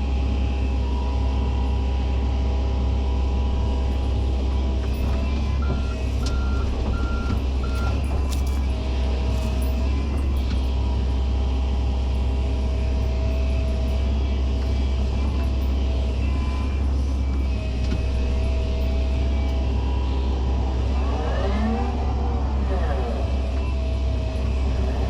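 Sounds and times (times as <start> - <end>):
excavator diesel engine rumbling: 0.0 - 25.0.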